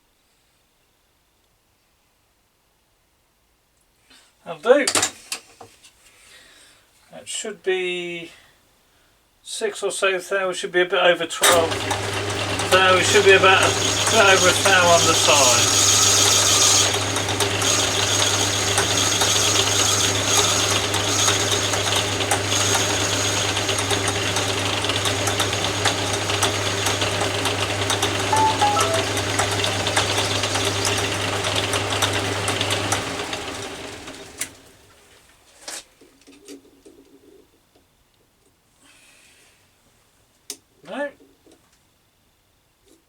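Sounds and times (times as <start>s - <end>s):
metal lathe humming and ticking: 11.7s - 28.0s.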